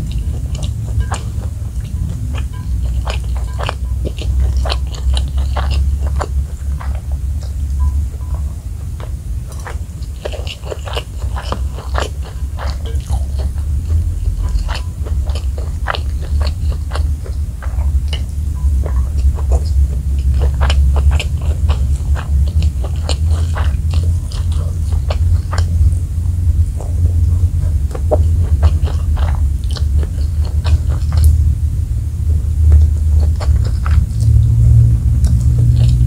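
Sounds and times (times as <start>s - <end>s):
chewing and crunching food: 0.0s - 36.0s
steady low hum: 0.0s - 36.0s.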